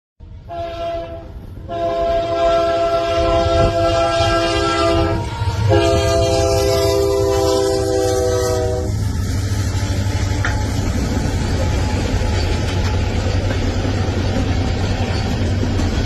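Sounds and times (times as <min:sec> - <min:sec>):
low train rumble: 0:00.2 - 0:16.0
locomotive air horn chord: 0:00.4 - 0:10.7.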